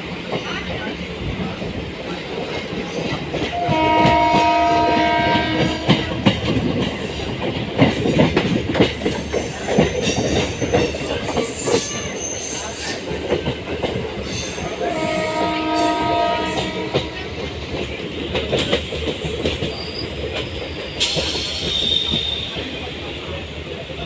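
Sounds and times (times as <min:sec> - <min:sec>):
train wheels clattering on rails: 0:00.0 - 0:24.0
train horn: 0:03.5 - 0:06.5, 0:14.8 - 0:17.5.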